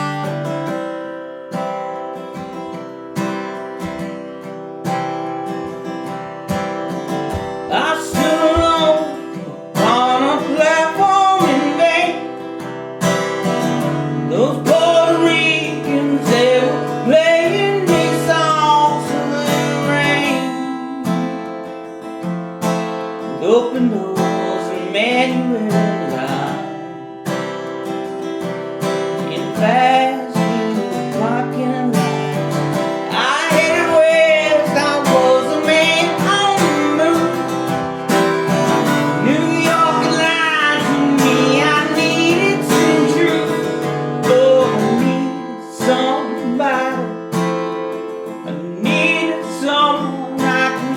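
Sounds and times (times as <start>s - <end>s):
guitar strumming: 0.0s - 50.9s
person singing: 7.2s - 12.6s, 13.6s - 21.8s, 23.2s - 27.0s, 29.1s - 50.9s.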